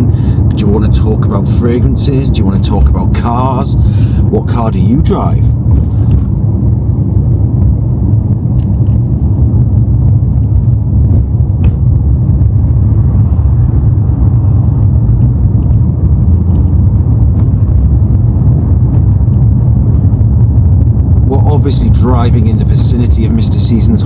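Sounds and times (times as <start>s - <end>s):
car engine rumble: 0.0s - 24.0s
road noise: 0.0s - 24.0s.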